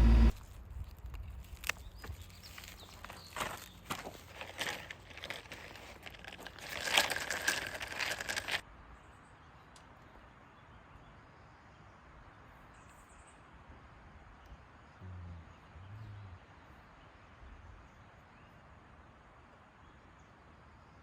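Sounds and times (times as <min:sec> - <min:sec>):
crunching and rustling: 0:00.0 - 0:08.6.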